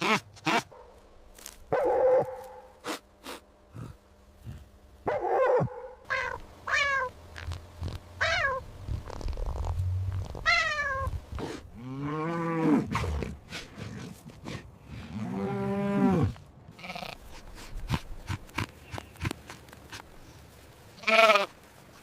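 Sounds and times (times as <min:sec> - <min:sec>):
cat meowing: 0:06.1 - 0:07.1, 0:08.2 - 0:08.6, 0:10.4 - 0:11.1.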